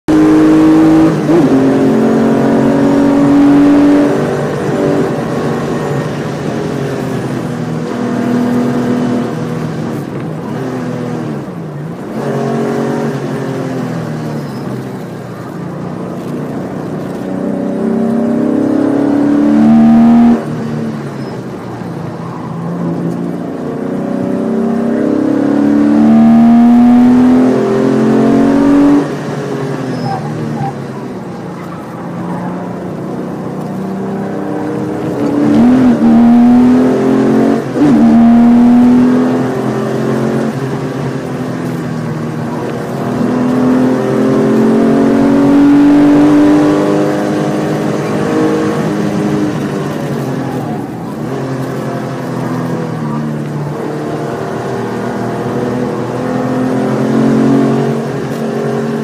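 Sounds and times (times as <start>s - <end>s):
car engine revving at speed: 0.0s - 59.0s.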